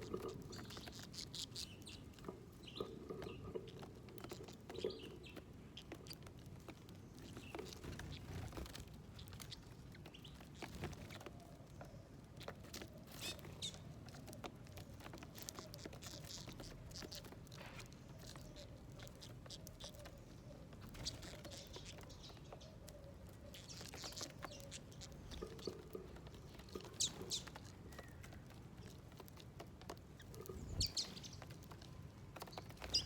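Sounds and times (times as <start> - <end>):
birds pecking at seeds: 0.0 - 33.0
faint bird chirps: 15.4 - 29.0, 30.2 - 33.0.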